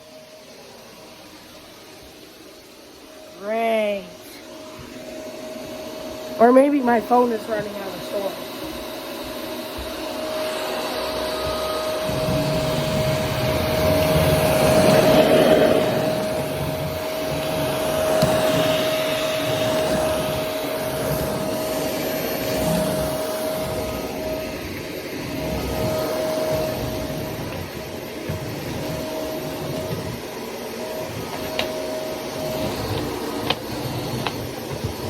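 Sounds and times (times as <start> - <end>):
vacuum cleaner motor whine: 0.0 - 35.0.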